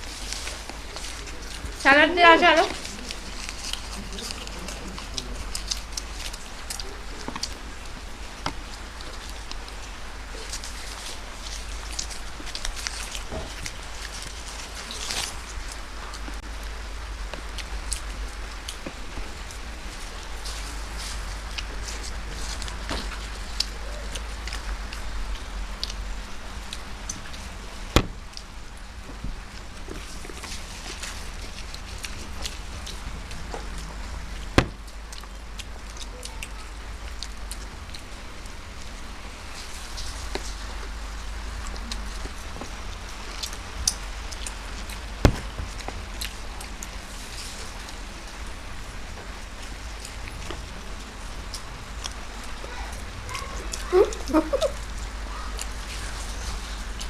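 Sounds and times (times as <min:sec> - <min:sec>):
chewing crackles and clicks: 0:00.0 - 0:57.0
steady low hum: 0:00.0 - 0:57.0
chewing and food handling clicks: 0:02.7 - 0:16.4, 0:41.6 - 0:48.4.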